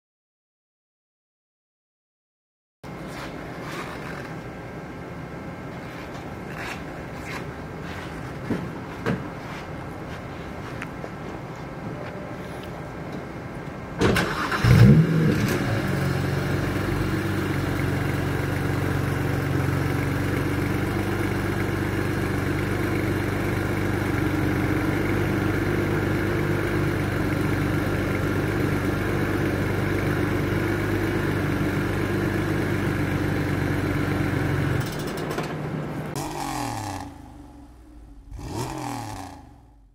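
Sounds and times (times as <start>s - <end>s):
car engine starting and idling: 13.9s - 39.9s
engine switched off: 14.0s - 21.2s.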